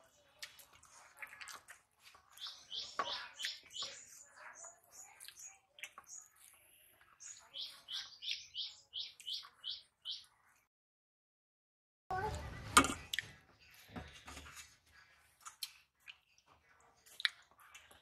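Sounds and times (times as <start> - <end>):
small bird chirping: 0.3 - 10.6.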